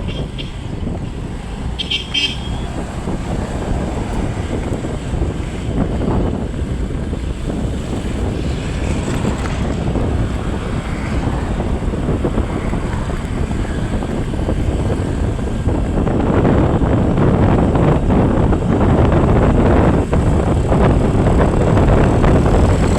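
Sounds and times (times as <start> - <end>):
vehicle engine running: 0.0 - 22.9
wind rushing over microphone: 0.0 - 22.9.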